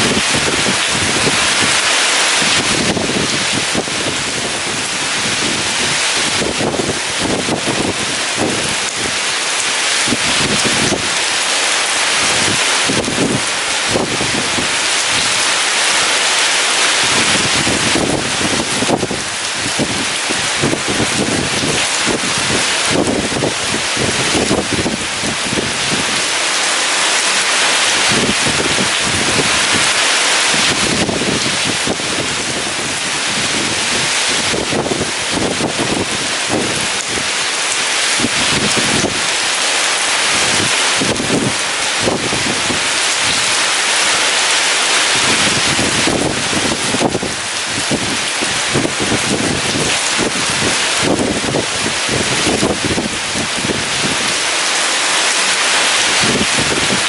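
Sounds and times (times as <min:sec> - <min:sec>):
gusty wind: 0:00.0 - 0:57.0
heavy rain falling: 0:00.0 - 0:57.0.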